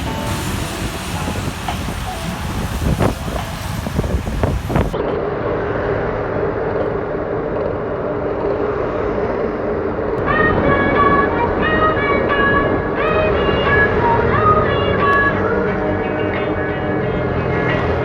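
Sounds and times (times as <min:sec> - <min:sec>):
vehicle engine rumble: 0:00.0 - 0:18.0.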